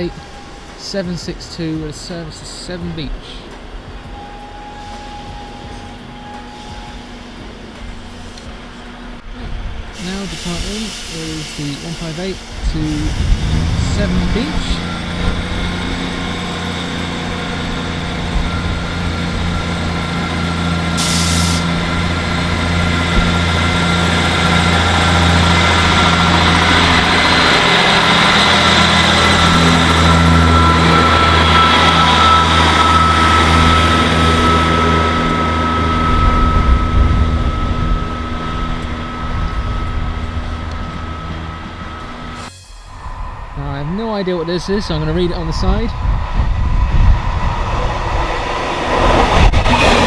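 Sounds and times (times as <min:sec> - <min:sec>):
air hiss: 0:00.0 - 0:36.9
diesel train engines droning: 0:00.0 - 0:50.0.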